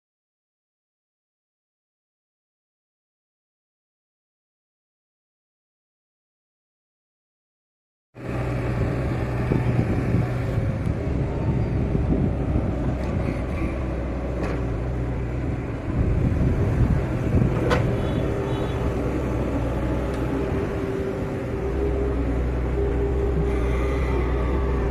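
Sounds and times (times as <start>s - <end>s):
excavator diesel engine running: 8.2s - 24.9s.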